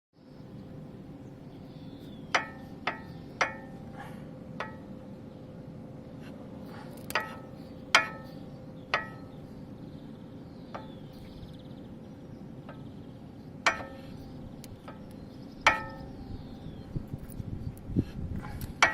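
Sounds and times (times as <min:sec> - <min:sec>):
metallic knocks from wheels: 0:13.6 - 0:16.2.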